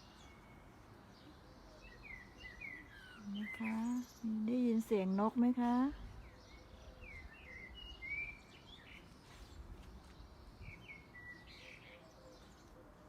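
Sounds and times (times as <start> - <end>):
songbird chirps and whistles: 6.1 - 12.5.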